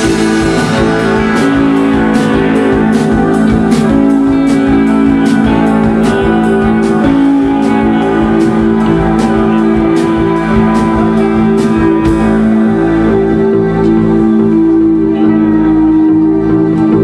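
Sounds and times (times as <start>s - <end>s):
cymbal hits: 0.0s - 12.4s
steady drum beat: 0.0s - 12.9s
band playing loudly: 0.0s - 16.0s
held guitar chords: 0.0s - 17.0s.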